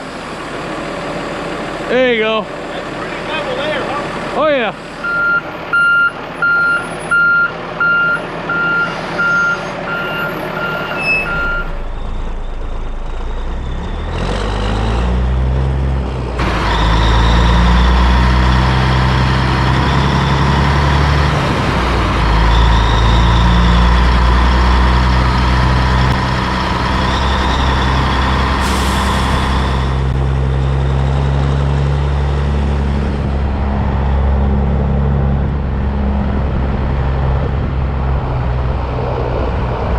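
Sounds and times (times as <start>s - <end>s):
back-up alarm beeping: 5.0s - 12.0s
heavy diesel engine revving: 7.5s - 39.9s.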